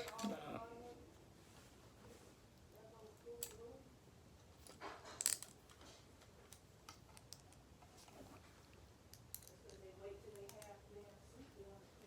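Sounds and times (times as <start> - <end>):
small metal parts rattling: 4.6 - 5.9.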